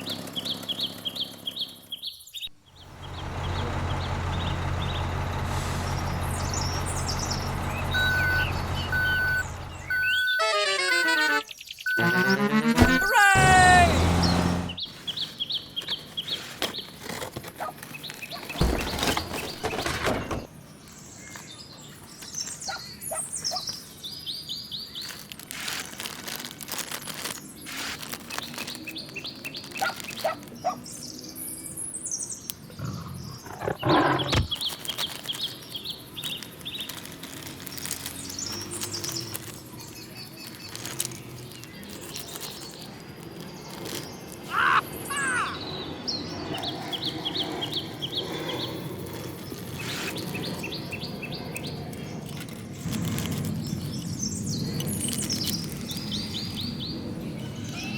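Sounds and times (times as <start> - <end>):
birds chirping: 0.0 - 17.0, 28.3 - 52.4.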